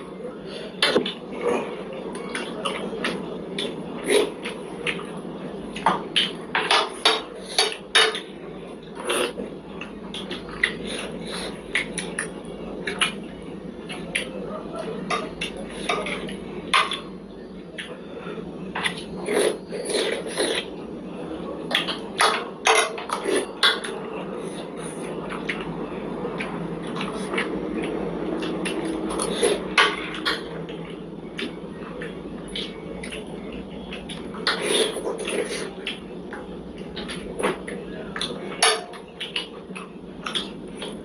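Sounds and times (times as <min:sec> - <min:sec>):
mouth eating noises: 0:00.8 - 0:05.1, 0:18.8 - 0:20.8, 0:26.3 - 0:41.0.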